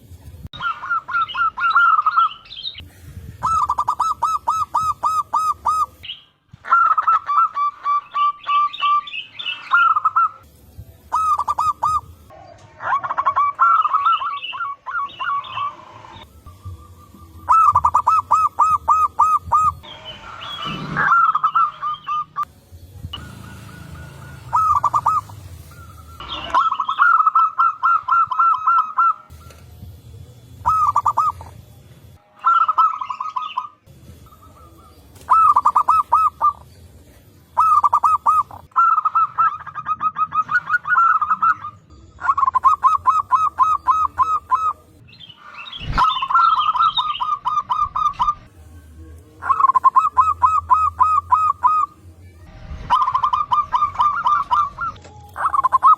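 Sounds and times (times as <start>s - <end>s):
higher twittering chirps: 0.5s - 12.3s, 13.1s - 29.7s, 30.6s - 31.6s, 32.2s - 36.9s, 37.5s - 55.9s
doves cooing: 0.6s - 10.5s, 11.1s - 22.5s, 23.1s - 29.6s, 30.4s - 31.6s, 32.4s - 45.0s, 49.4s - 52.0s, 52.6s - 55.9s
brief rushing noise: 19.9s - 22.2s.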